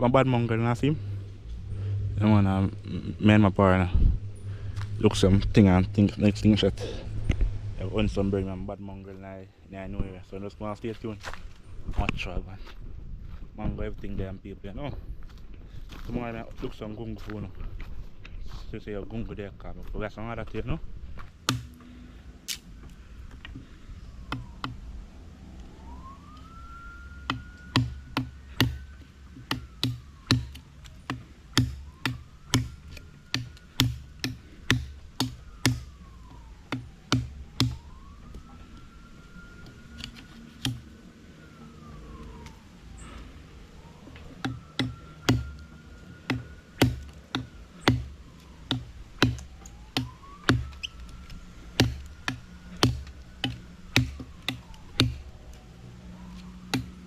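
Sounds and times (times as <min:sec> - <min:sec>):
faint siren wailing: 0:00.0 - 0:57.0
sharp knocks with low thuds: 0:46.3 - 0:48.1.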